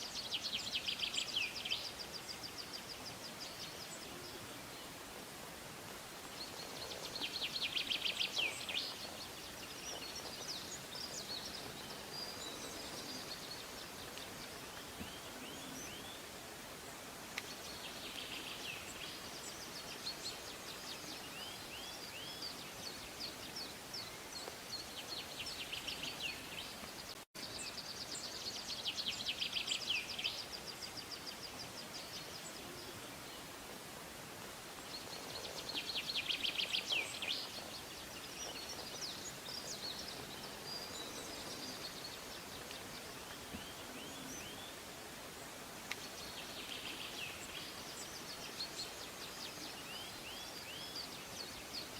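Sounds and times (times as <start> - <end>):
faint outdoor hiss: 0.0 - 51.9
songbirds chirping and singing: 6.1 - 16.4, 34.5 - 51.9.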